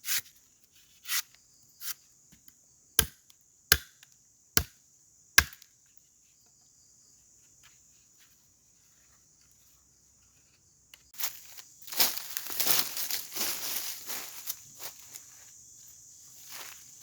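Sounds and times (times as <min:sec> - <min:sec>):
forest insects droning: 0:00.3 - 0:17.0
chopping strike on wood: 0:03.0 - 0:04.0, 0:05.4 - 0:05.7
rustling of dry leaves: 0:11.2 - 0:15.4.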